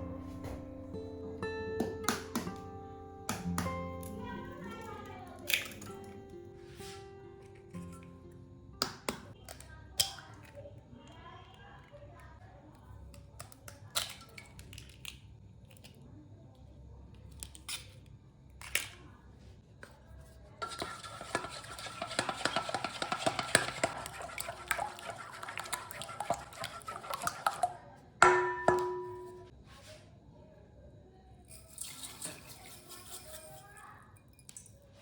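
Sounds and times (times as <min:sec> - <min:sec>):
utensils clinking against a bowl: 0:20.6 - 0:29.5, 0:31.5 - 0:34.9.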